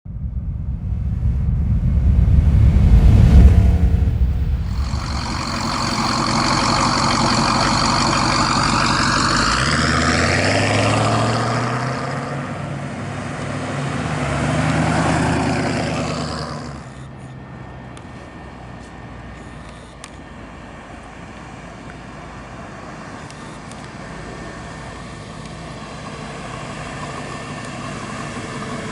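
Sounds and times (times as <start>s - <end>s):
car engine accelerating: 0.0s - 17.1s.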